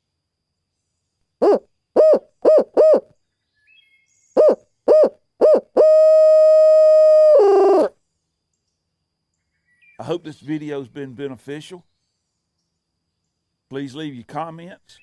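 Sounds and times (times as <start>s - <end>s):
owl hooter hoots: 1.4s - 3.1s, 4.4s - 8.0s.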